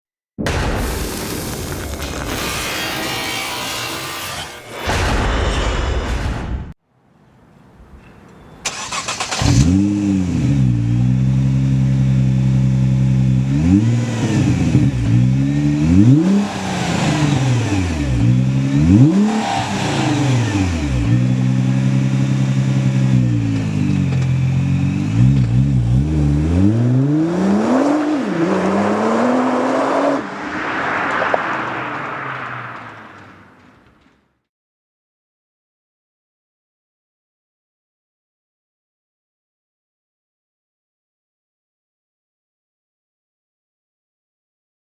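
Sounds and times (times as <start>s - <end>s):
car moving off: 8.2s - 34.2s
car engine idling and revving: 8.7s - 34.1s.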